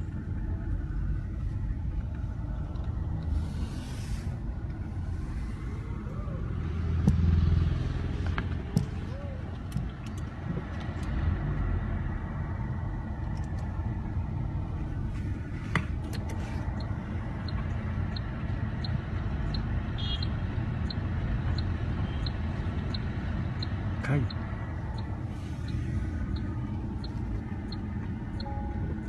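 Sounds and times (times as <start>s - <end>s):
faint high chirp: 28.4s - 29.0s.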